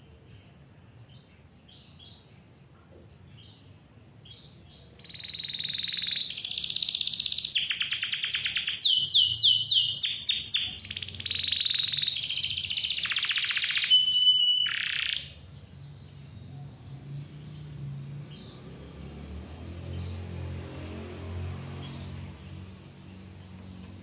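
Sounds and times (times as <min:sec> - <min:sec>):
canary singing trills: 0:03.1 - 0:19.2.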